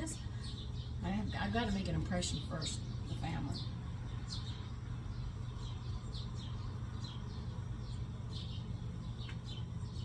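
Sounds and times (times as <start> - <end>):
bird chirping: 0.0 - 10.0
steady low hum: 0.0 - 10.0.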